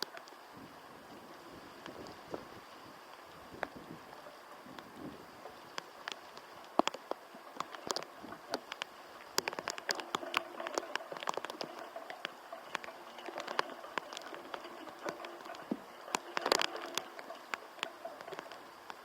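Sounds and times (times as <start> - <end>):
raindrops ticking near microphone: 0.0 - 19.0
wind and rain: 0.0 - 19.0.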